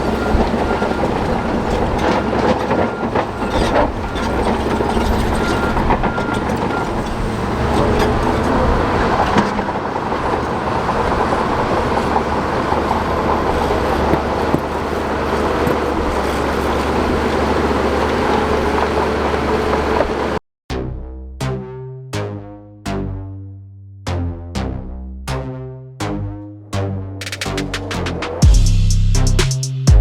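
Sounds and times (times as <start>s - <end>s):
diesel engine running: 0.0s - 20.4s, 27.2s - 30.0s
steel tracks clattering: 0.0s - 20.4s.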